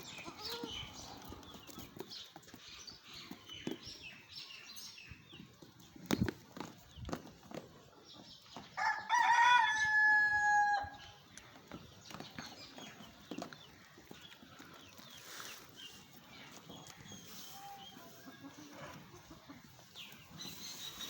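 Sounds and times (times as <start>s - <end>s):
rooster crowing: 8.8s - 10.9s.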